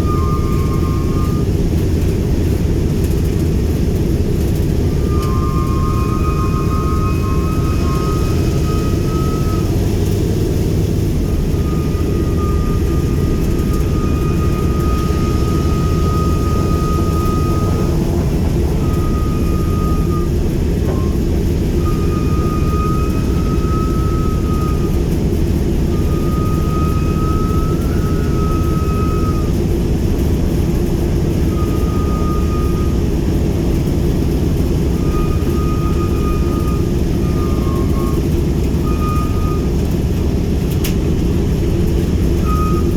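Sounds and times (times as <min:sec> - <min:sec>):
radial aircraft engines running: 0:00.0 - 0:42.9
thin high tone: 0:05.0 - 0:09.8, 0:11.2 - 0:25.0.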